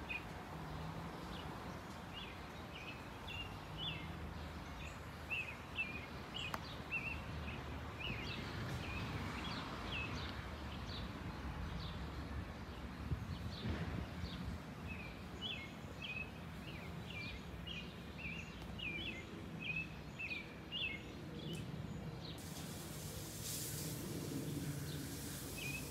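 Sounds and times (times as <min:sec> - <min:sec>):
thin hiss: 0:22.4 - 0:25.9
bird chirping: 0:24.2 - 0:25.9.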